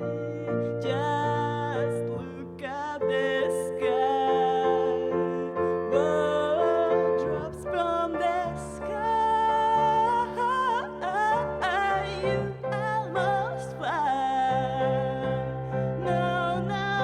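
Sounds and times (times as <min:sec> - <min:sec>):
person singing: 0:00.0 - 0:17.0.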